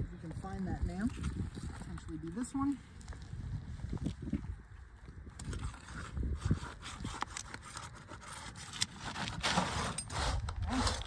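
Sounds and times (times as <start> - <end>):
scraping and rubbing: 5.4 - 11.0.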